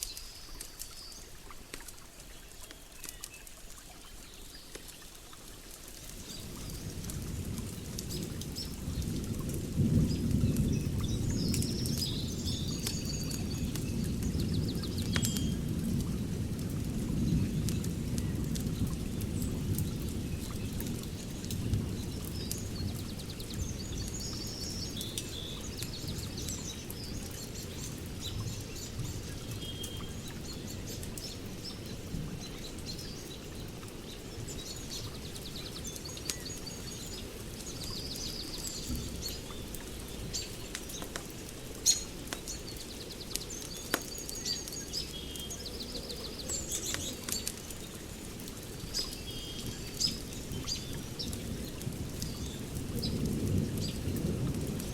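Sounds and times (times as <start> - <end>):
wood fire crackling: 0.0 - 54.9
birds chirping and trilling: 41.8 - 48.2.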